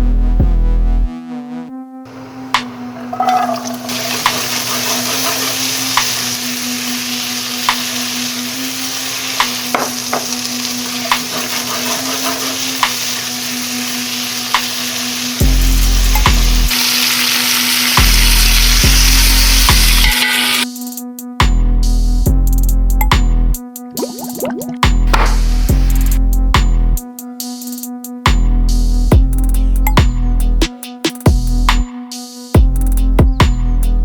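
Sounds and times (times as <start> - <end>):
food sizzling in frying pan: 3.0 - 20.6.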